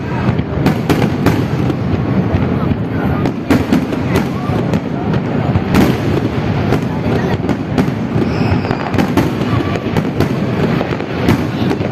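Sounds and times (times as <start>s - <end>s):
fireworks exploding: 0.0s - 11.9s.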